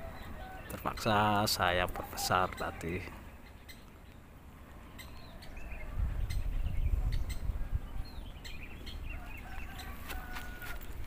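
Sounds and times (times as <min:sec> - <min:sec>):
low rumbling microphone noise: 0:04.4 - 0:11.0
high bird chirps: 0:04.8 - 0:10.7.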